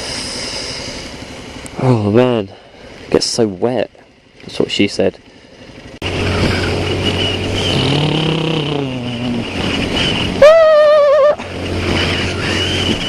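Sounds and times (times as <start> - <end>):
motorcycle engine running: 0.0 - 13.0
wind and road noise: 0.0 - 13.0
loud wavering high tone: 6.2 - 11.5.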